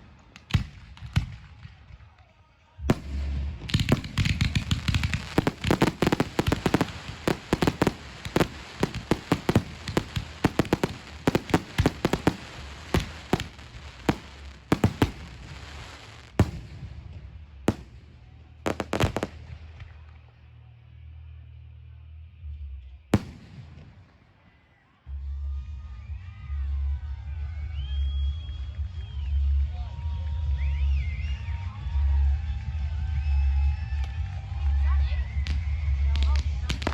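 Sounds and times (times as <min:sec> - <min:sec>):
fireworks bangs: 0:02.8 - 0:20.1, 0:23.2 - 0:24.6.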